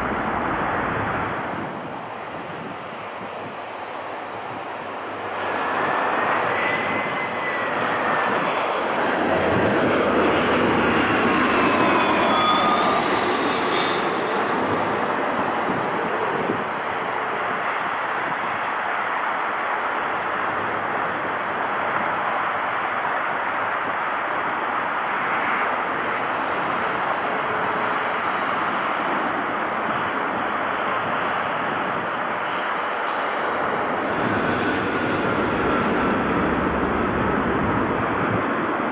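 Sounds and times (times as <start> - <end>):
jet engine whine: 0.0 - 38.9
jet engines rushing: 3.9 - 19.5, 33.1 - 38.9.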